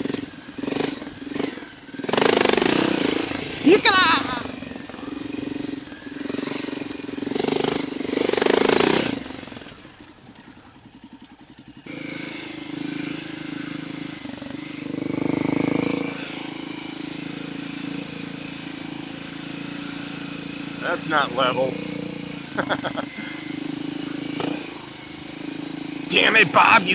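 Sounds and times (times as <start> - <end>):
dirt bike engine revving: 0.0 - 9.6.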